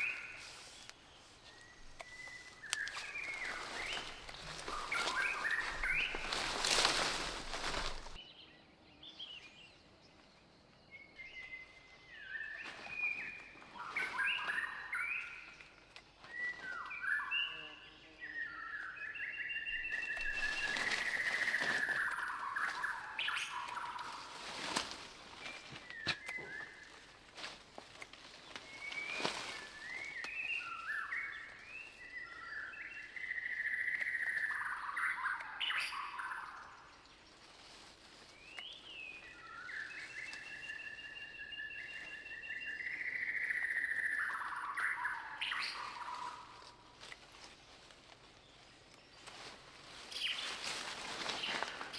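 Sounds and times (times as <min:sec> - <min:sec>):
birds warbling: 0:00.0 - 0:08.2, 0:19.5 - 0:51.9.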